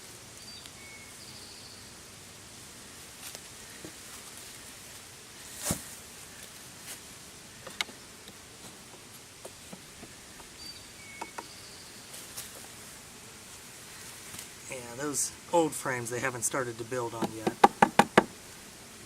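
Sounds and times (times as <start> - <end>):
bees buzzing: 0.0 - 19.0
wooden hive frames knocking: 8.8 - 10.5, 11.2 - 11.5, 17.2 - 18.4.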